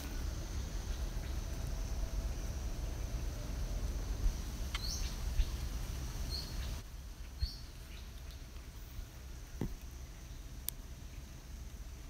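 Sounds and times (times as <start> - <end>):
steady low rumble: 0.0 - 12.0
bird chirping: 4.7 - 11.3.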